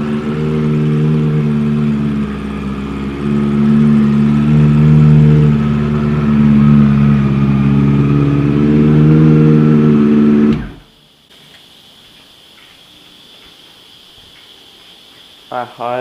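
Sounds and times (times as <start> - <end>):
motorcycle engine running: 0.0 - 10.9.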